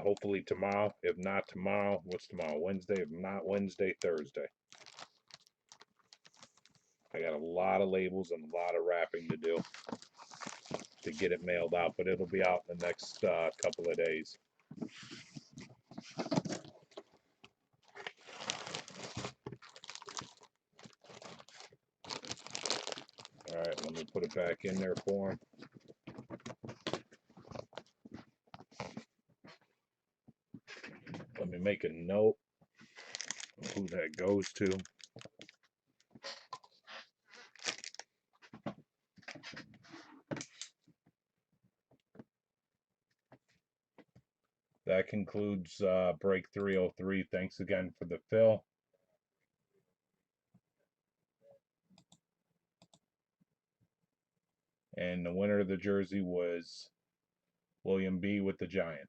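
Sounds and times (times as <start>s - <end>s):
packaging crinkling: 4.0s - 6.9s, 9.4s - 14.2s, 17.8s - 25.2s, 32.9s - 35.6s, 37.4s - 38.0s
handling noise rustling and scratching: 8.4s - 29.8s, 32.8s - 40.6s.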